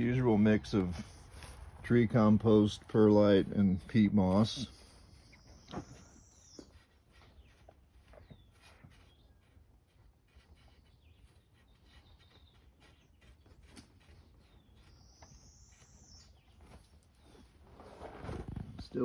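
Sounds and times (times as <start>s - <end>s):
faint songbird chirps: 4.6s - 17.6s.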